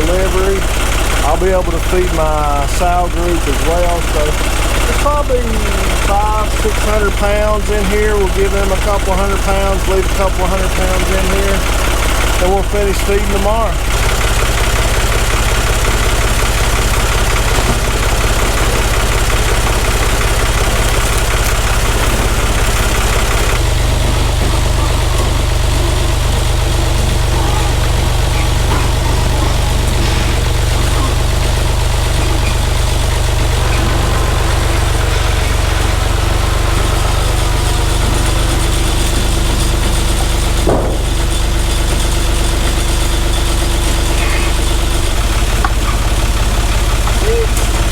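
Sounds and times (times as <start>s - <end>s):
tractor engine running: 0.0s - 47.9s.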